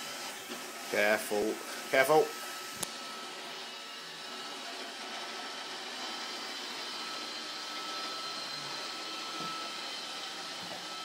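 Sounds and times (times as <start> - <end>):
robot vacuum running: 0.0 - 11.0.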